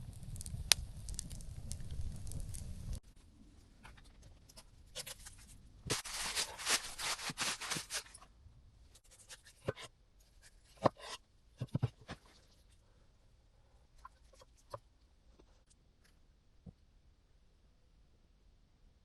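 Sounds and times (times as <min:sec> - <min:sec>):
dry rustling and scraping: 0:05.0 - 0:08.3.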